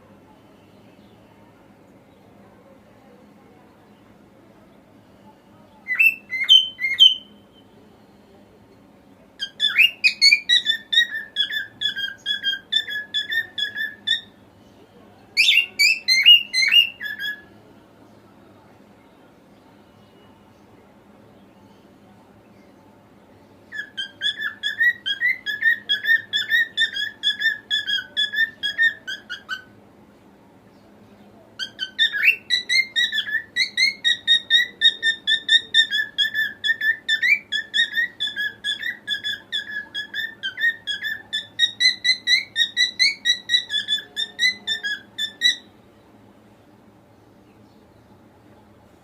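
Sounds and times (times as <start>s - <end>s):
cockatiel whistling: 5.9s - 7.4s, 9.4s - 14.3s, 15.4s - 17.4s, 23.7s - 29.7s, 31.6s - 45.7s.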